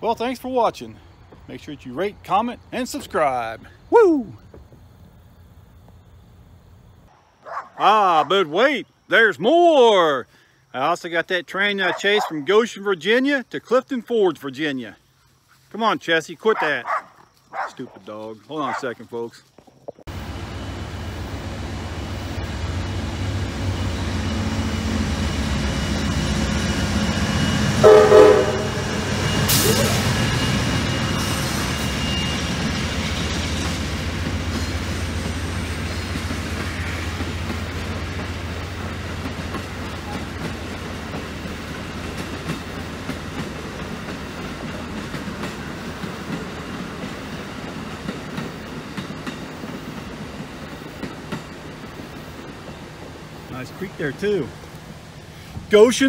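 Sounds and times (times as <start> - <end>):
passenger train rumbling on rails: 20.1 - 55.8
locomotive horn blast: 27.6 - 30.2.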